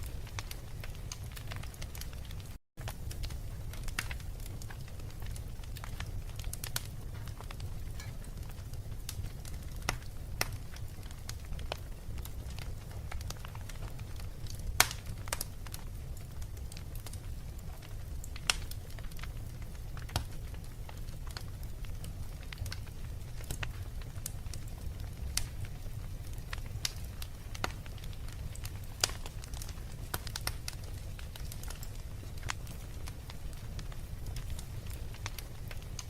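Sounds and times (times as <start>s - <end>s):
low fire rumble: 0.0s - 36.0s
wood fire crackling and popping: 0.0s - 36.0s.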